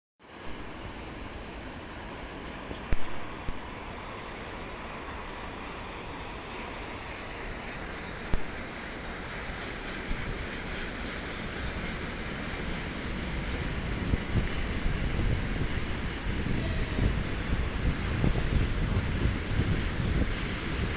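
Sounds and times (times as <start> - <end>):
freight train rumble: 0.2 - 20.9
wind on microphone: 10.0 - 20.9.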